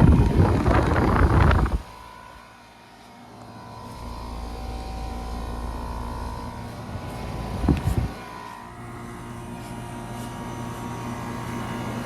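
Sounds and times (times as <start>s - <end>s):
air conditioner unit humming: 0.0s - 12.0s.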